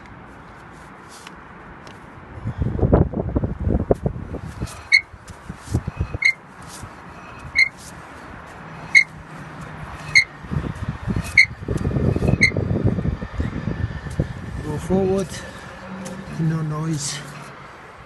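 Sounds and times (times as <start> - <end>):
wheel rumble: 1.2 - 18.0
brake chirping: 3.9 - 18.0.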